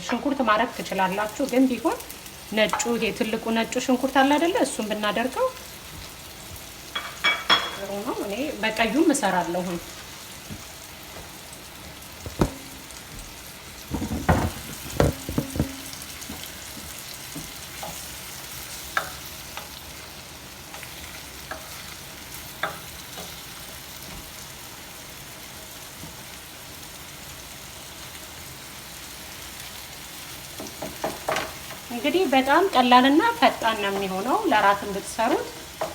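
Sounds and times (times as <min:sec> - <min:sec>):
onion sizzling in frying pan: 0:00.0 - 0:35.9
utensil knocking against pan: 0:12.2 - 0:12.9, 0:13.9 - 0:16.1.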